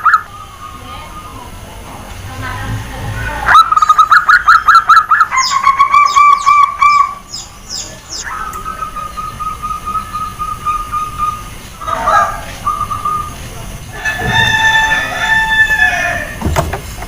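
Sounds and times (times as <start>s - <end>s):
high quick bird chirps: 3.5s - 13.4s
dove cooing: 3.5s - 14.4s.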